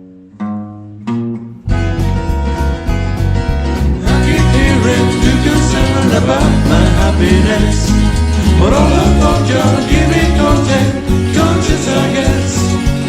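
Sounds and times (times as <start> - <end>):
country music with guitar and banjo: 0.1 - 13.0.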